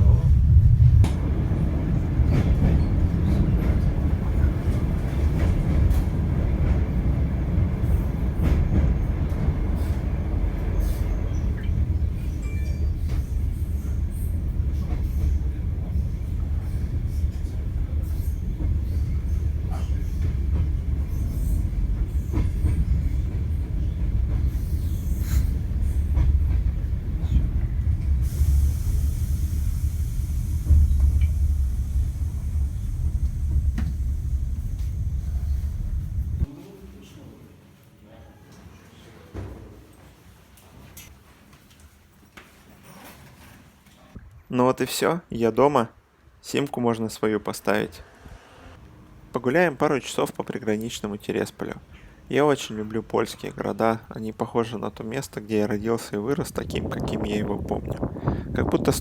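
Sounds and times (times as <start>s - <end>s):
train rumbling on rails: 0.0s - 36.6s, 47.9s - 59.0s
high hiss: 28.1s - 36.5s.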